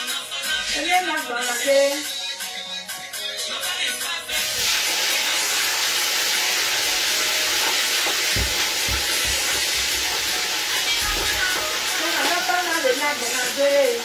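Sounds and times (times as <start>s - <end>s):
food sizzling in hot oil: 4.3s - 14.0s
dull knocks: 8.3s - 9.6s.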